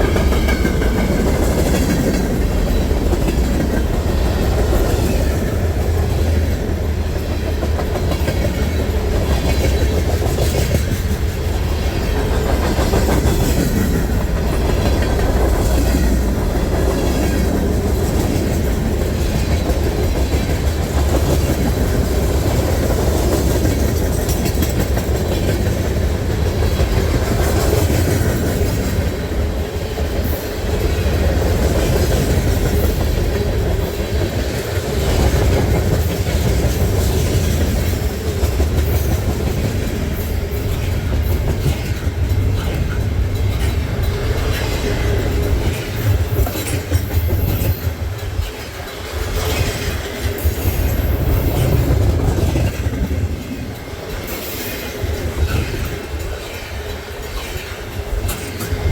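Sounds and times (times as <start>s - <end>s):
freight train cars rumbling: 0.0s - 58.9s
wheels clicking over rail joints: 0.0s - 58.9s.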